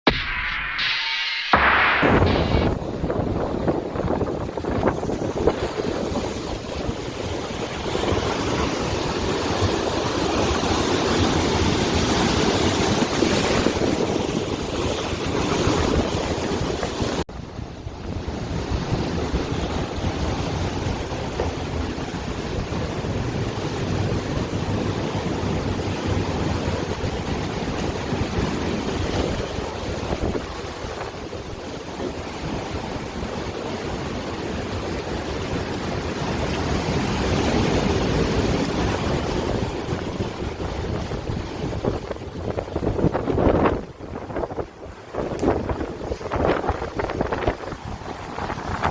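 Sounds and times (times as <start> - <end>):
wind noise on microphone: 1.5 - 48.9.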